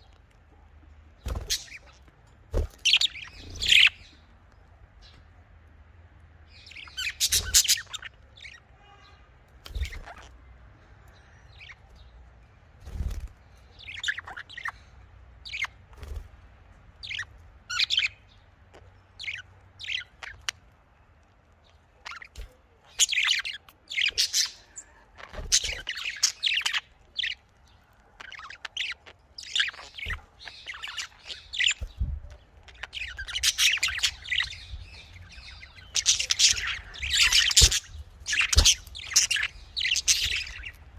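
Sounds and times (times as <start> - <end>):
budgerigars chirping: 1.2 - 2.0, 2.7 - 4.1, 6.6 - 8.6, 9.7 - 10.4, 13.7 - 15.8, 17.0 - 20.6, 22.0 - 40.9.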